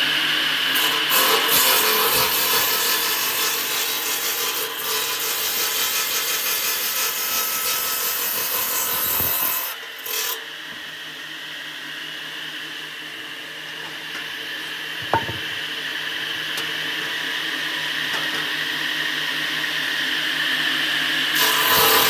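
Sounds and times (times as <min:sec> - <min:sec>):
woodworking machine cutting wood: 0:00.5 - 0:10.4, 0:15.0 - 0:15.7, 0:21.4 - 0:22.0.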